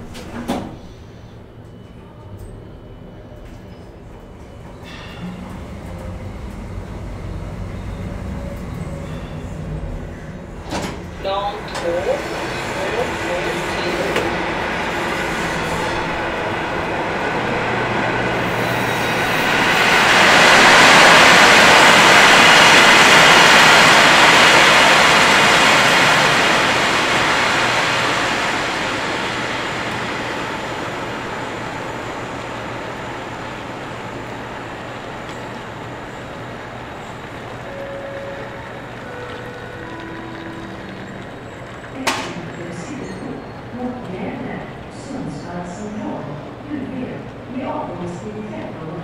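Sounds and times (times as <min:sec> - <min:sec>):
train rumbling past: 0:00.0 - 0:49.0
short tone: 0:37.6 - 0:40.8.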